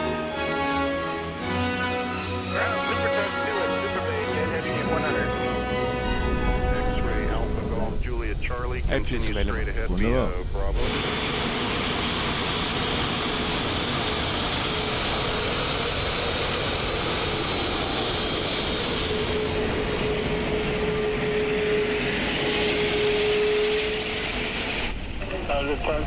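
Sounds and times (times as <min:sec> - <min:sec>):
jet cockpit rushing noise: 0:07.1 - 0:26.0.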